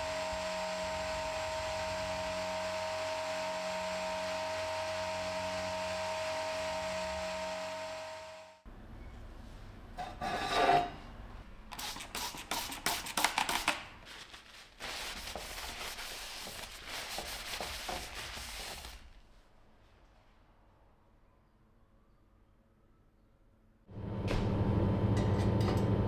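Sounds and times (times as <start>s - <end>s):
hand scraping strokes: 14.1s - 19.2s.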